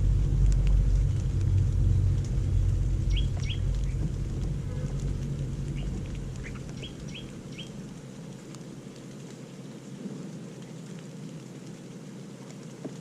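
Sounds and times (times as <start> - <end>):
low rumble: 0.0 - 8.6
high bird chirps: 3.1 - 4.0, 5.8 - 7.8.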